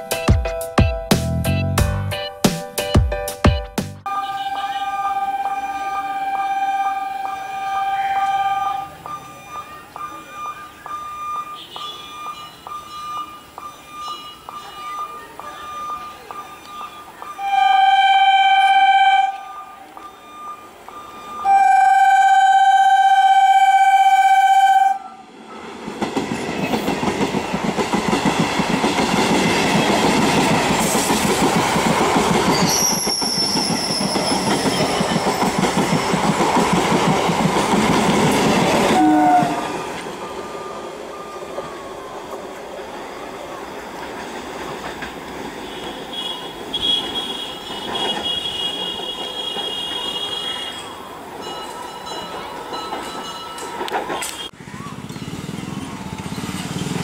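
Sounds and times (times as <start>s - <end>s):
train horn blasts: 4.1s - 9.2s, 17.4s - 19.9s, 21.4s - 25.3s, 38.8s - 39.8s, 45.6s - 51.0s
train wheels rumbling and clattering: 25.3s - 57.0s.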